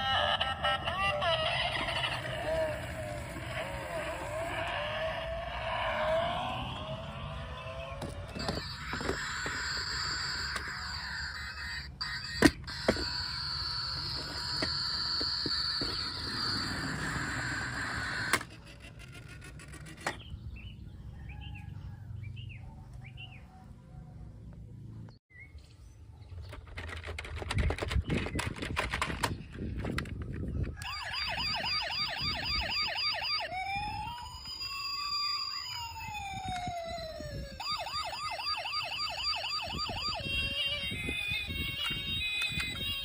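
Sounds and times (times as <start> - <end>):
electronic police siren: 0.0 - 18.5, 30.6 - 43.0.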